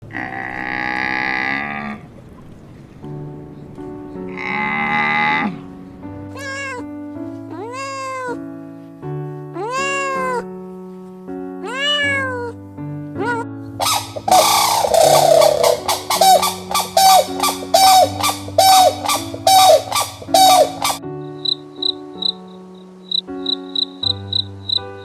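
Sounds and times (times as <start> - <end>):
soft background music: 2.5 - 25.0
cat meowing: 6.3 - 6.9, 7.5 - 8.4, 9.6 - 10.5, 11.6 - 12.6, 13.2 - 21.0.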